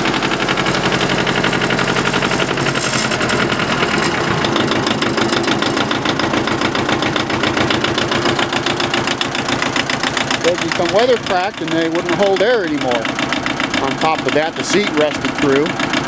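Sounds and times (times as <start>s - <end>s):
diesel tractor engine idling: 0.0s - 16.0s.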